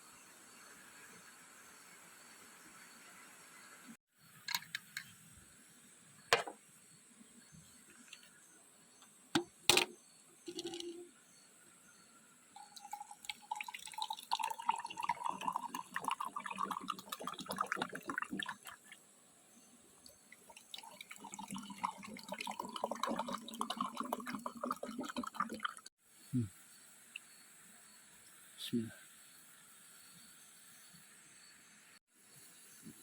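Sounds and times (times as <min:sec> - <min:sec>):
liquid pouring into container: 0:10.5 - 0:11.0, 0:12.6 - 0:19.0, 0:20.3 - 0:25.9.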